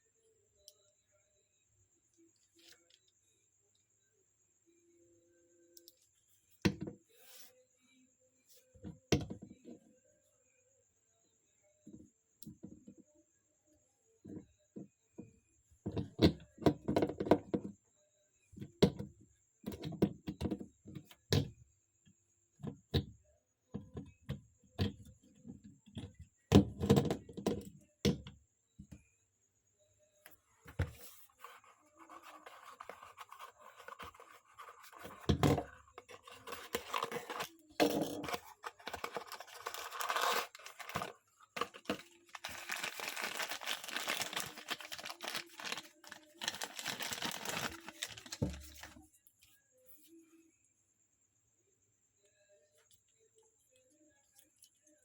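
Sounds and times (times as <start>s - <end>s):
packaging crinkling and tearing: 36.2s - 37.5s, 38.2s - 49.0s.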